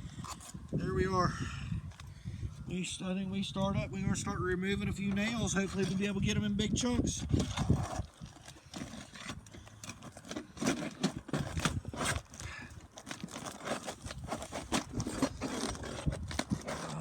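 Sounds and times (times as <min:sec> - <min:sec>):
pry bar scraping under shingles: 0:00.0 - 0:00.8, 0:05.0 - 0:17.0
shingles tearing loose: 0:07.2 - 0:17.0.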